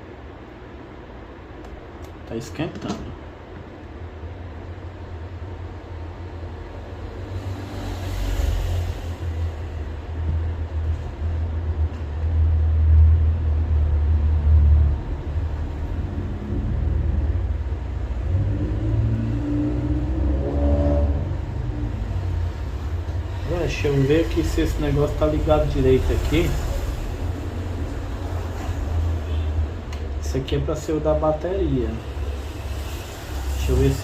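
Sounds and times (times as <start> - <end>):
low rumble: 4.4 - 34.0
faint droning pitch: 12.7 - 30.3.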